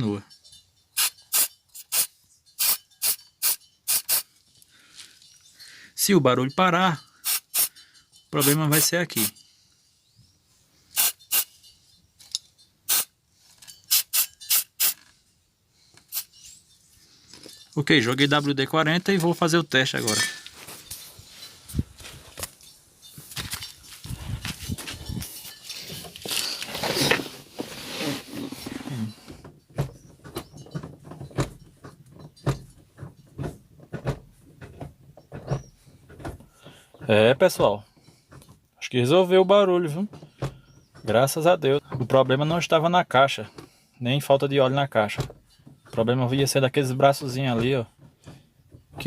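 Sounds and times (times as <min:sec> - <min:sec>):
aerosol can spraying: 0:01.0 - 0:04.2, 0:07.2 - 0:07.7, 0:11.0 - 0:11.5, 0:12.9 - 0:13.1, 0:13.9 - 0:15.0.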